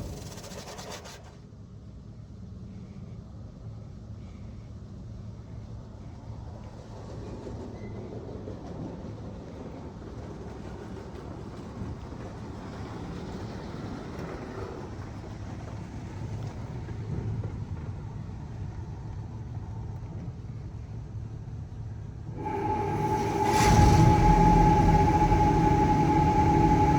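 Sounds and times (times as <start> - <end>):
car wash machinery and spray: 22.2 - 26.9
low hum: 22.3 - 26.9.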